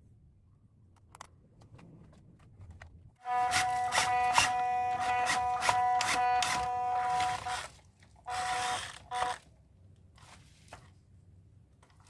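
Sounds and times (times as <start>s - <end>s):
electric motor and gearbox whining: 3.2s - 7.7s, 8.3s - 9.4s.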